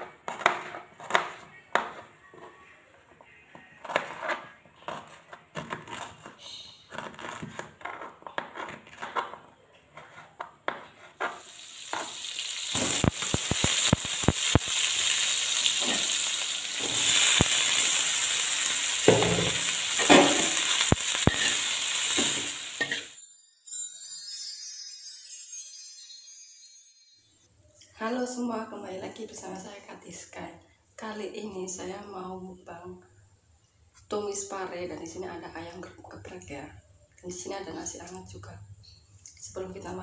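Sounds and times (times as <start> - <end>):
food stirred in a pan: 4.0 - 23.1
frying sizzle in hot oil: 11.2 - 23.2.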